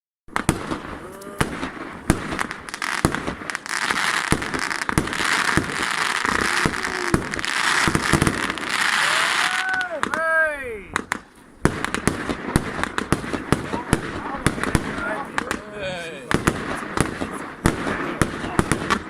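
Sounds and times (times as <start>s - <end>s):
firework bangs: 0.3s - 19.0s
firework crackling hiss: 0.4s - 10.1s
firework whistles: 0.4s - 10.1s.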